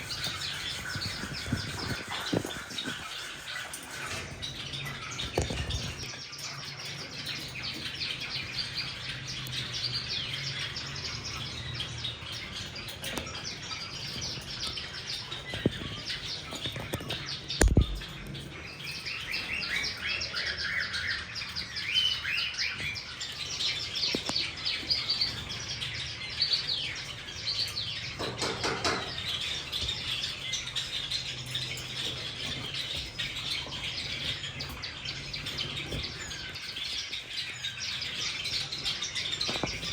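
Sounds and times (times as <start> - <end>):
cockatiels chirping: 0.0 - 39.9
sharp thump: 17.6 - 18.1.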